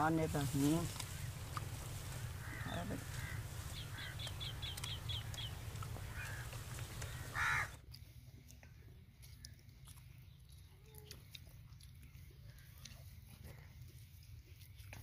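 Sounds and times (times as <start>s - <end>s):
birds chirping: 0.0s - 7.8s
low background rumble: 0.0s - 7.8s
loud harsh bird call: 2.2s - 7.8s.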